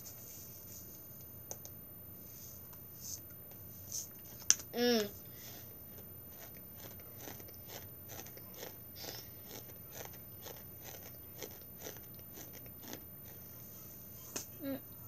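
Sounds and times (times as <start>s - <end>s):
person chewing food: 6.0s - 13.4s.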